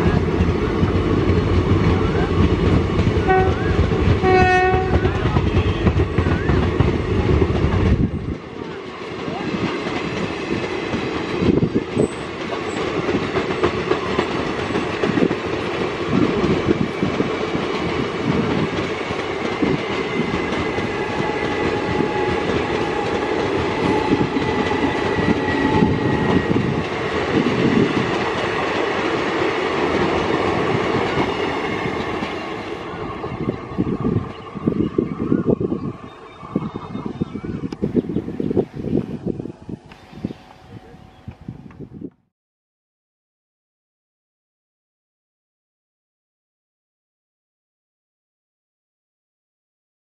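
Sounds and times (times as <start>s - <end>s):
train wheels clattering over rails: 0.0s - 34.4s.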